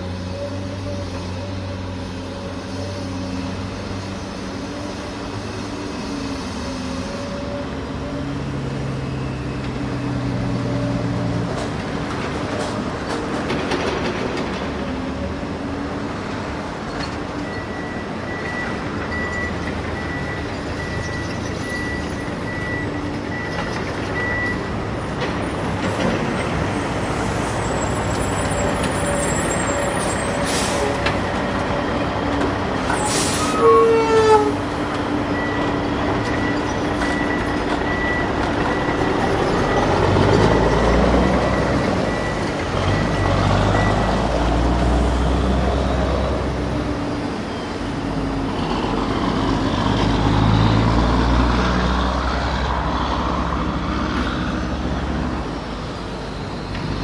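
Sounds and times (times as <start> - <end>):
reversing beeps: 17.4 - 24.7, 35.3 - 44.3
air brake hiss: 33.0 - 33.6.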